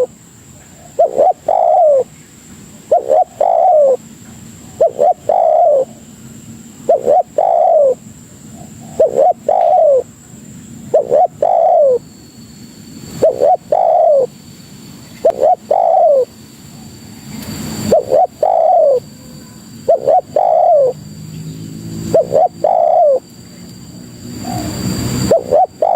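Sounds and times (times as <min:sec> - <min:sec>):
dove cooing: 0:00.0 - 0:02.1, 0:02.8 - 0:06.1, 0:06.8 - 0:10.2, 0:10.9 - 0:12.0, 0:13.2 - 0:14.4, 0:15.2 - 0:16.9, 0:17.8 - 0:21.0, 0:22.0 - 0:23.3, 0:24.3 - 0:25.9.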